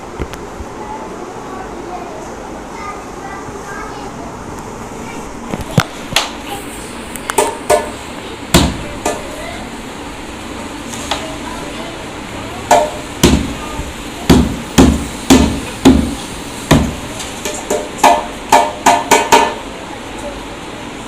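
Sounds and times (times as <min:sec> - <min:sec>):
drum strokes ringing: 0:12.6 - 0:13.7, 0:14.3 - 0:19.7.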